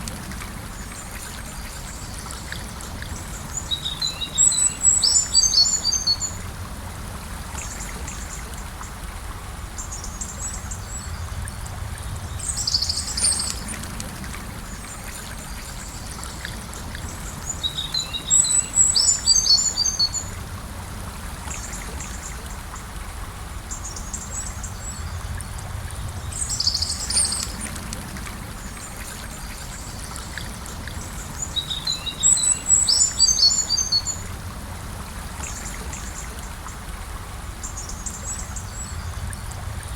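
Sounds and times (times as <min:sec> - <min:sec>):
river flowing: 0:00.0 - 0:39.9
songbird chirping: 0:02.2 - 0:06.4, 0:15.6 - 0:20.4, 0:28.8 - 0:34.3.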